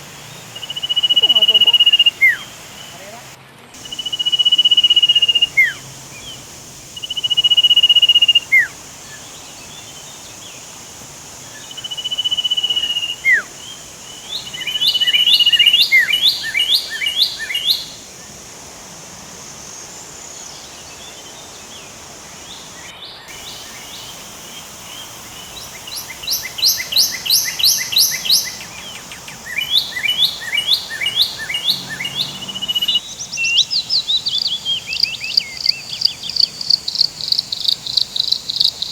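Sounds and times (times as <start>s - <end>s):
birds whistling and trilling: 0.0s - 3.1s, 3.8s - 10.6s, 11.5s - 18.0s, 24.9s - 36.4s
high insect buzz: 0.0s - 38.9s.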